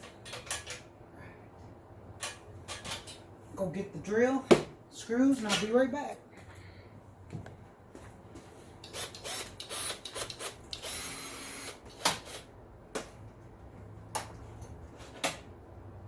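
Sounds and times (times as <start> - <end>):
objects rustling and scraping: 14.4 - 15.3.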